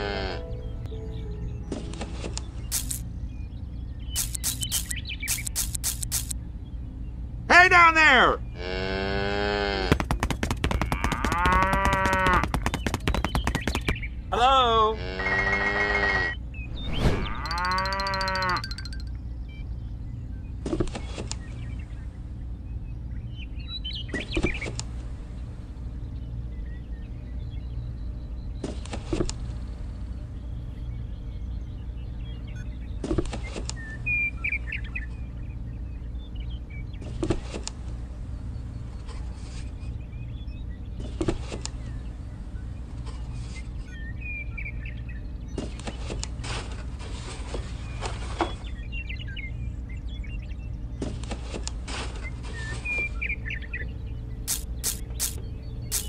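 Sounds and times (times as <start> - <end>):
steady low hum: 0.0 - 7.5, 8.2 - 56.0
small birds chirping: 0.0 - 56.0
cardboard roof tapping and rustling: 9.9 - 14.0.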